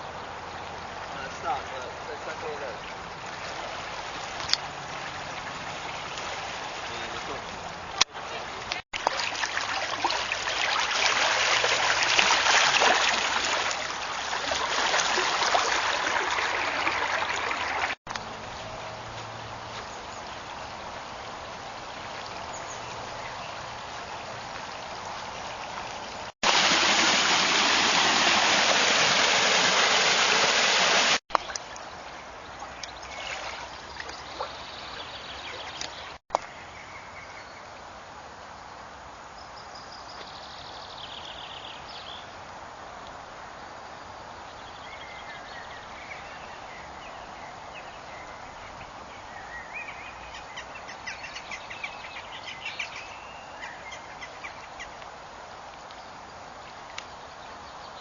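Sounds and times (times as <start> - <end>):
water rushing through channel: 0.0 - 18.0, 20.4 - 31.8.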